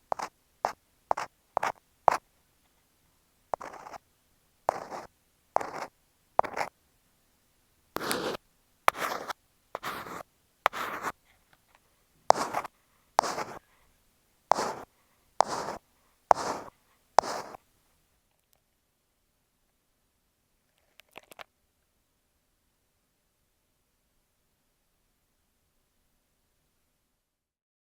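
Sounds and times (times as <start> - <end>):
ear pick scraping a microphone: 8.0 - 11.1, 12.3 - 13.6, 14.5 - 17.6.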